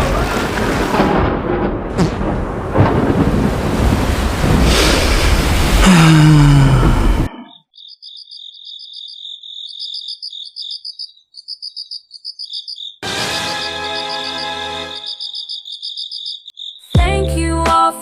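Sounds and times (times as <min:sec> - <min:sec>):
loud storm noise: 0:00.0 - 0:07.3
crickets chirping: 0:07.4 - 0:17.0
music: 0:13.0 - 0:15.0, 0:17.0 - 0:18.0.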